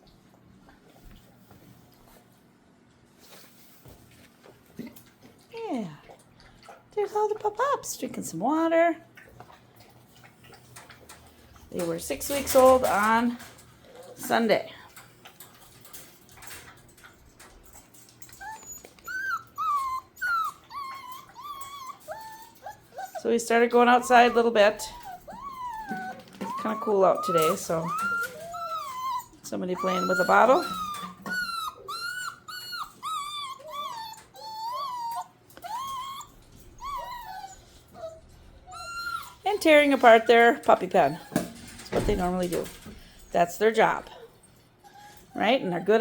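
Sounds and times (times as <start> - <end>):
puppies whimpering: 17.7 - 42.3, 43.8 - 46.0.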